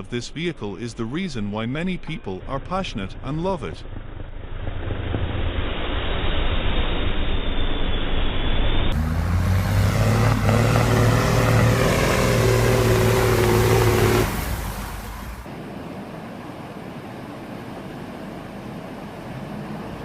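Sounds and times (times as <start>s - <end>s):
heavy truck engine under load: 8.9s - 20.0s.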